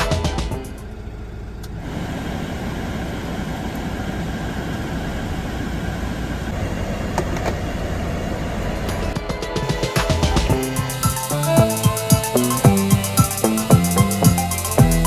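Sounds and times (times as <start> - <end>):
motor running steadily: 10.1 - 15.0.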